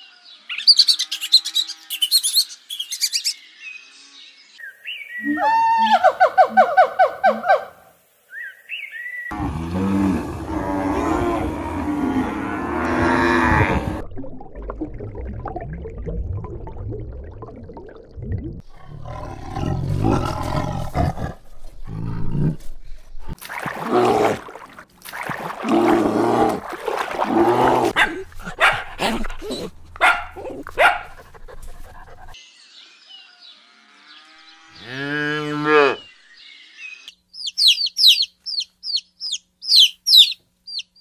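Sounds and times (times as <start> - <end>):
bird chirps: 0.0 - 5.4, 36.0 - 41.0
tiger growls and roars: 9.3 - 14.0, 18.6 - 24.5, 25.6 - 32.4.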